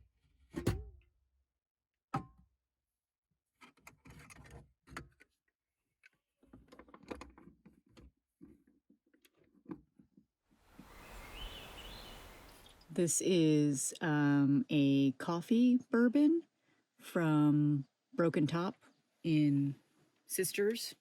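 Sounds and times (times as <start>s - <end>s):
soft hiss: 10.7s - 13.0s.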